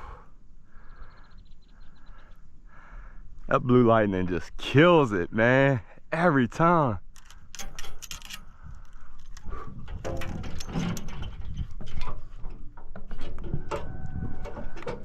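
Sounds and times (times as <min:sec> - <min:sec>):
gear clicking knocking and rattling: 0:07.1 - 0:13.6
short squeaks: 0:13.1 - 0:15.0.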